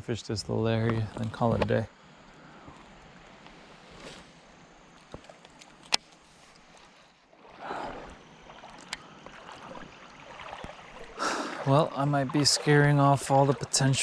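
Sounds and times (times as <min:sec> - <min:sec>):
creek water sloshing: 0:03.0 - 0:14.0.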